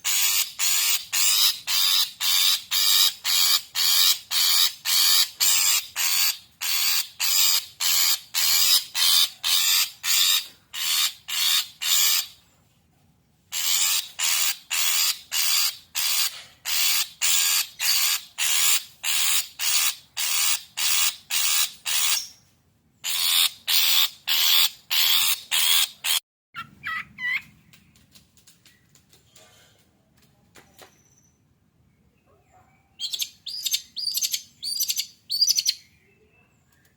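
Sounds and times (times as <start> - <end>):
bird harsh rasping calls: 0.0 - 12.4, 13.5 - 22.4, 23.0 - 27.5.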